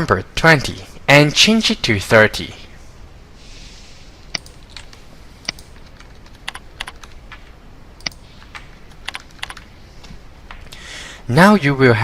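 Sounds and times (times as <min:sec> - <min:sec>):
keyboard and mouse clicks: 0:04.3 - 0:10.7.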